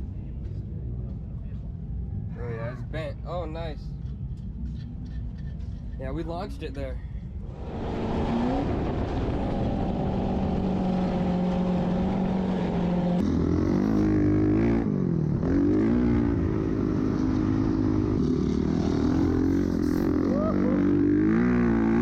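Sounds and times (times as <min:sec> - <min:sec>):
off-road vehicle engine revving: 0:07.5 - 0:22.0.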